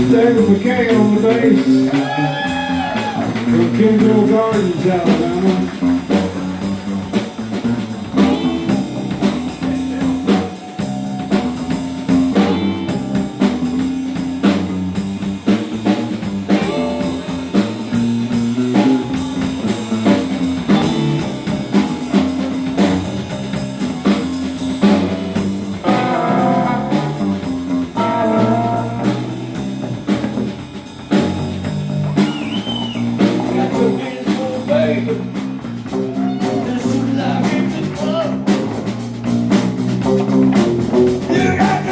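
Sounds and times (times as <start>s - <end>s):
lead guitar line: 0.0s - 31.3s, 32.2s - 39.4s, 40.2s - 41.9s
blues-rock band playing: 0.0s - 41.9s.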